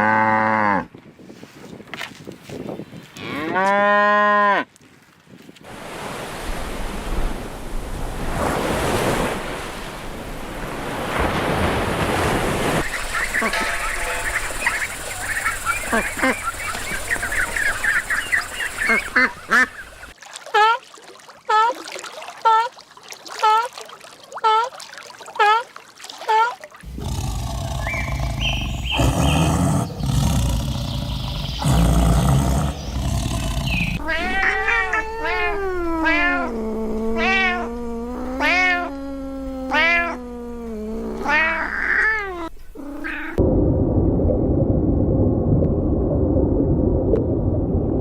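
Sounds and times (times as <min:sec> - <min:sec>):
cats meowing and yowling: 0:34.0 - 0:43.4.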